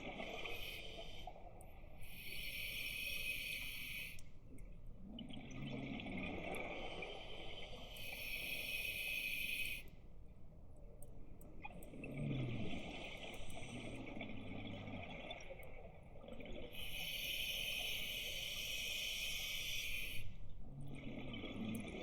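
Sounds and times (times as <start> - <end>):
gurgling exhaled bubbles: 5.1 - 7.8
regulator inhalation hiss: 16.9 - 20.2.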